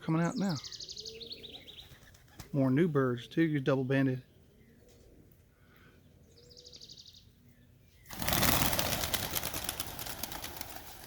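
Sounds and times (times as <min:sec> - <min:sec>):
pigeon wings flapping: 0:08.1 - 0:11.0.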